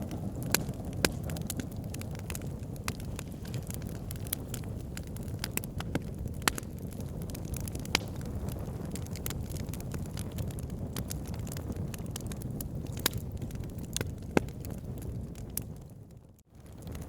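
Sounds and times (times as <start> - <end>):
fire crackling and popping: 0.0 - 17.0
low rumble of flames: 0.0 - 17.0.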